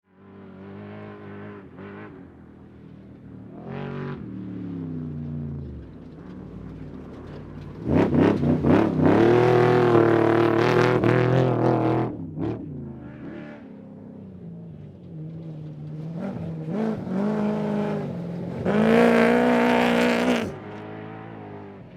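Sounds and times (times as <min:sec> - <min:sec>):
truck engine revving: 0:07.8 - 0:12.5, 0:16.0 - 0:20.7.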